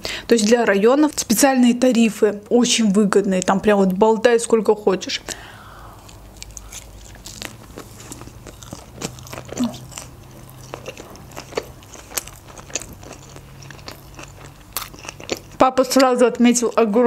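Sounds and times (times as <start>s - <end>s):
wet chewing of sushi: 6.0s - 16.1s.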